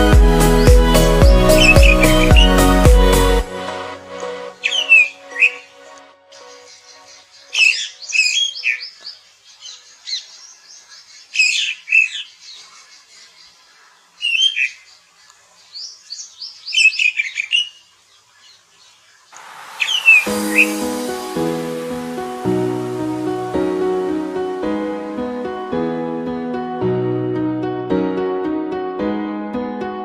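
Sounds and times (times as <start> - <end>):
music: 0.0 - 6.7, 20.2 - 30.0
bird chirping and squawking: 4.6 - 5.7, 6.4 - 9.0, 15.8 - 17.8.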